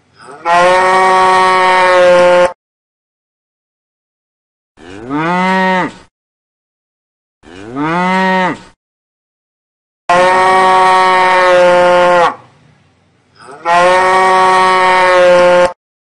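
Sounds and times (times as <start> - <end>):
cow mooing: 0.2 - 2.6, 4.8 - 6.0, 7.4 - 8.7, 10.1 - 12.4, 13.4 - 15.8.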